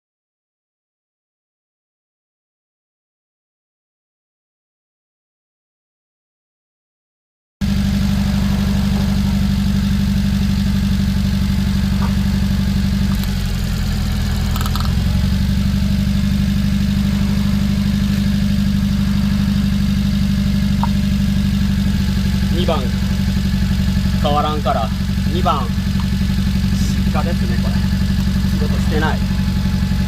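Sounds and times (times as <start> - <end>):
misfiring engine idling: 7.6 - 30.0.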